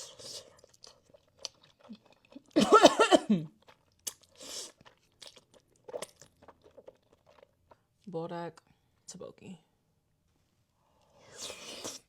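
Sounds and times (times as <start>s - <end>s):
slurp: 3.6s - 7.8s, 11.2s - 12.0s.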